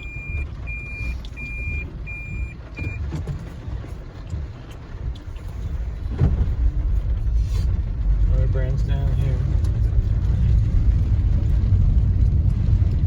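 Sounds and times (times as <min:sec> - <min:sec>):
high electronic warning beep: 0:00.0 - 0:03.0
steady low rumble: 0:00.0 - 0:13.0.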